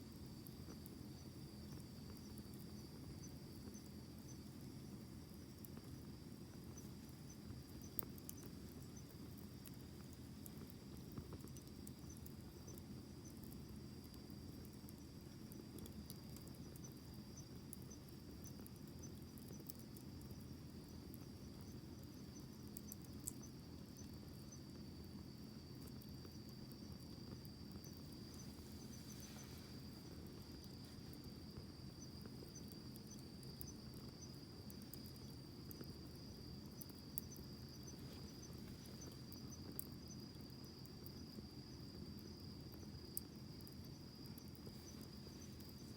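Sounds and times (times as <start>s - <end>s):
crickets trilling: 0.0s - 45.9s
campfire crackling and popping: 1.9s - 20.4s.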